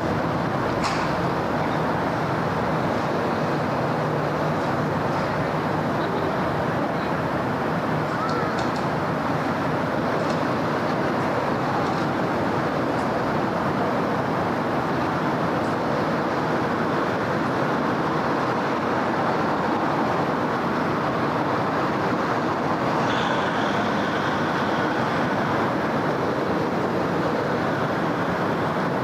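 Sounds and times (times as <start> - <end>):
road traffic roar: 0.0 - 29.0.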